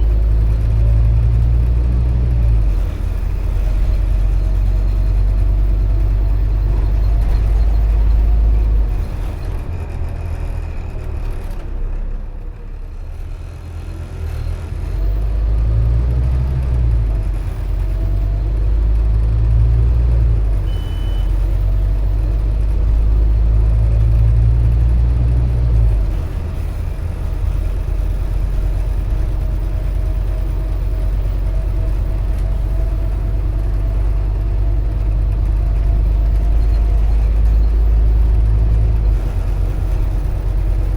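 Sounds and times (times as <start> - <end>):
bus diesel engine accelerating: 0.0 - 40.9
short high beep: 20.6 - 21.3.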